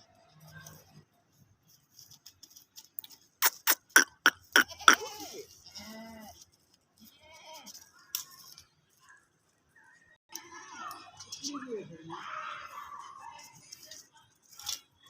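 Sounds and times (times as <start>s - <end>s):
goat bleating: 3.4s - 6.4s.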